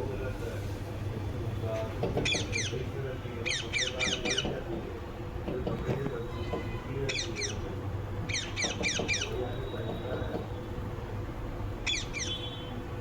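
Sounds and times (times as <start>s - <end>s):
parrot screeching: 11.8s - 12.5s.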